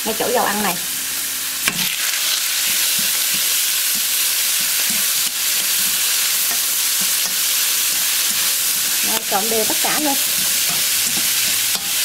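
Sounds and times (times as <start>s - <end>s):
seafood sizzling in hot oil: 0.0s - 12.0s
chopsticks tapping a pan: 2.6s - 12.0s.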